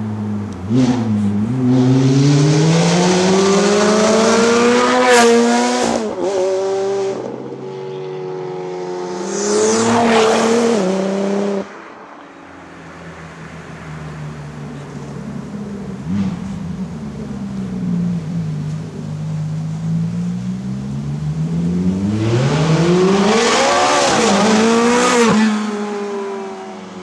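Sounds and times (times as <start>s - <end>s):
supercar engines accelerating: 0.0s - 27.0s
quieter engine running steadily: 11.9s - 22.2s.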